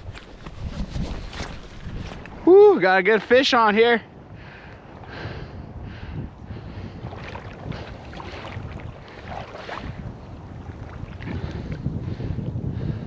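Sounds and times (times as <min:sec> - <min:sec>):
rustles and splashes: 0:00.0 - 0:03.8, 0:07.0 - 0:12.0
wind buffeting microphone: 0:00.0 - 0:13.0.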